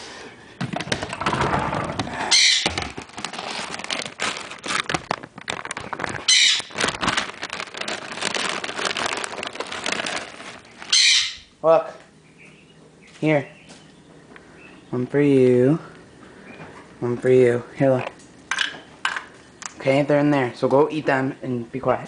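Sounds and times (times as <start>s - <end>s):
conure squawk: 2.3s - 2.7s, 6.2s - 6.8s, 10.9s - 11.5s
handling rustling and clicks: 2.7s - 10.9s.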